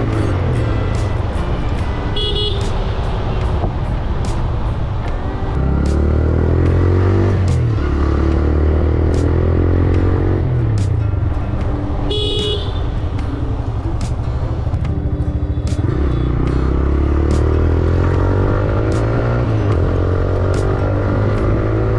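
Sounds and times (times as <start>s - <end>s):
motorcycle engine revving: 0.0s - 21.9s
vehicle horn toot: 0.2s - 4.2s, 12.0s - 12.9s.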